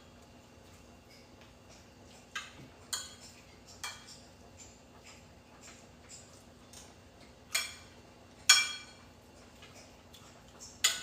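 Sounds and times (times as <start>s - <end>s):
cutlery clinking on dishes: 2.3s - 6.9s, 7.5s - 11.0s.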